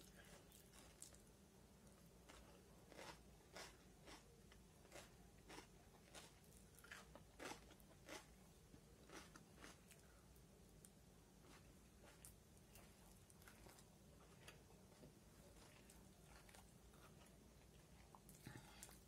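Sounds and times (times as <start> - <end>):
faint chewing clicks: 1.8 - 8.3.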